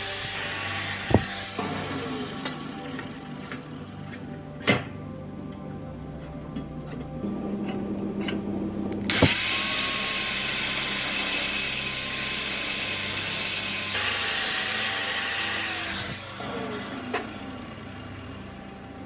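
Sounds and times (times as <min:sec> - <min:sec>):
power tool motor whine: 0:00.0 - 0:04.0, 0:09.1 - 0:19.0.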